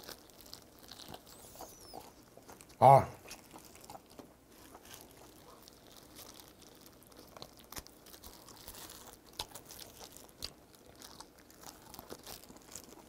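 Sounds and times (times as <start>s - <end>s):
chewing and gnawing meat: 0.0s - 13.0s.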